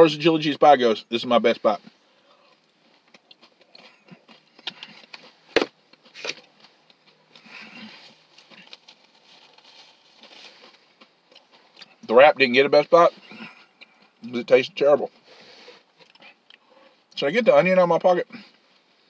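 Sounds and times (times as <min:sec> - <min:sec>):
chewing chips with wet crunches: 0:02.2 - 0:12.1, 0:15.1 - 0:17.2.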